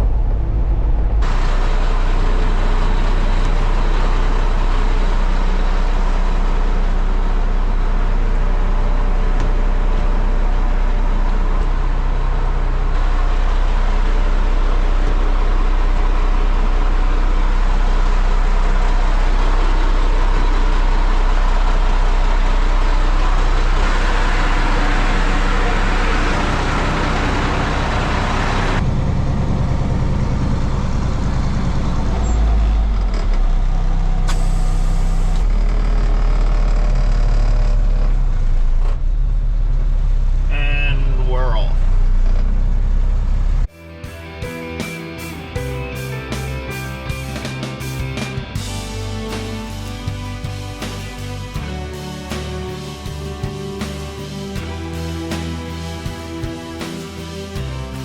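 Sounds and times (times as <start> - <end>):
heavy vehicle engine under load: 0.0 - 43.7.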